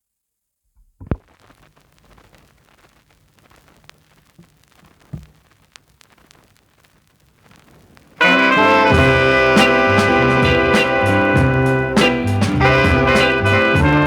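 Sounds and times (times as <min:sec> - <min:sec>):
vinyl surface crackles and ticks: 0:00.7 - 0:08.9
vinyl record pop: 0:00.8 - 0:14.0.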